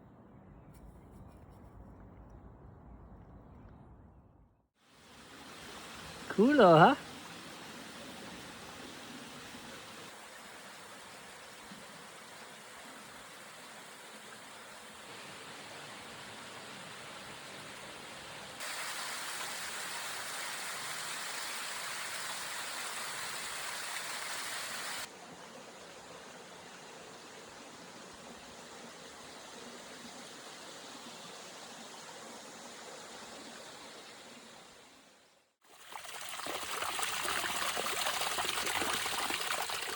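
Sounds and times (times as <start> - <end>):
stream and waterfall rushing: 5.0 - 25.1.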